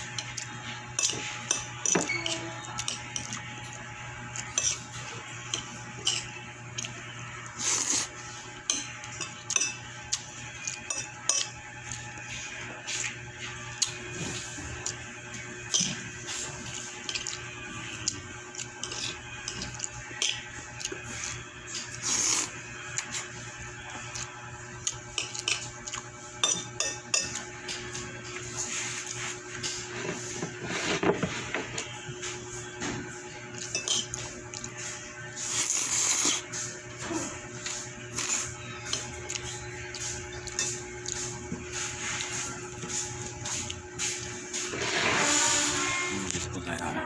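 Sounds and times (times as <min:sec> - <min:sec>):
cutlery clinking and scraping on plate: 0:00.2 - 0:03.4, 0:04.4 - 0:06.9, 0:08.6 - 0:12.3, 0:15.6 - 0:17.5, 0:18.6 - 0:22.0, 0:25.1 - 0:36.4, 0:37.6 - 0:46.5
cutlery clinking on a plate: 0:01.0 - 0:03.4, 0:05.6 - 0:06.4, 0:08.7 - 0:09.9, 0:10.8 - 0:11.6, 0:15.7 - 0:16.0, 0:26.4 - 0:27.9, 0:33.6 - 0:34.3, 0:40.0 - 0:41.3.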